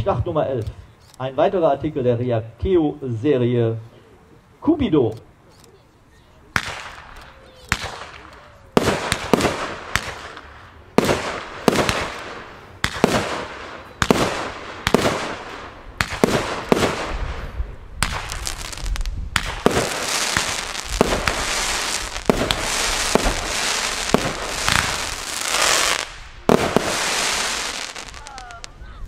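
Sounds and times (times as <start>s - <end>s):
fireworks shots: 6.5s - 28.8s
rapid fireworks crackling: 6.6s - 28.9s.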